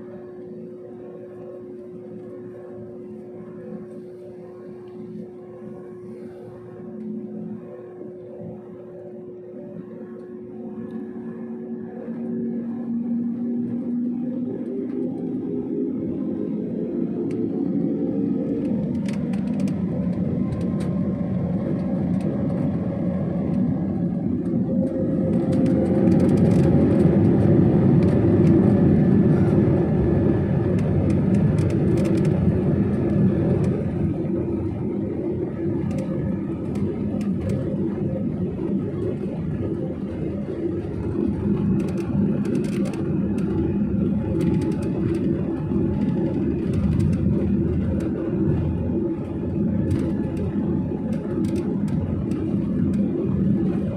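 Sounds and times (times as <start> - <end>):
jet engines rumbling in cabin: 0.0 - 53.9
faint clicks and rattles: 18.6 - 20.9, 30.8 - 32.4, 40.0 - 53.9.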